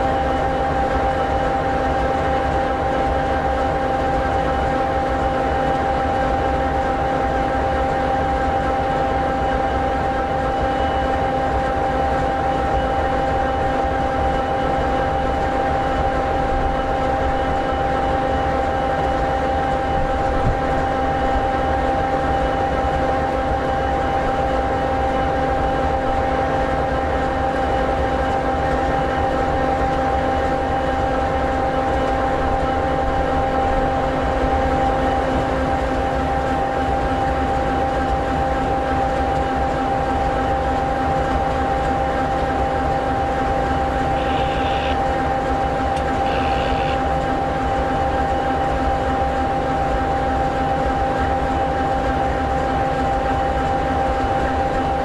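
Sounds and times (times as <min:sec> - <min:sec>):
diesel locomotive idling: 0:42.0 - 0:51.5.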